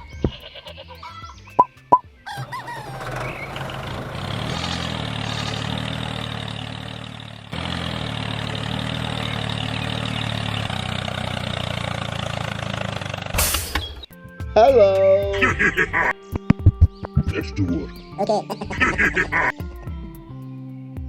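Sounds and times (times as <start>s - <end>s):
tractor diesel engine idling: 2.3s - 14.1s, 18.6s - 19.5s.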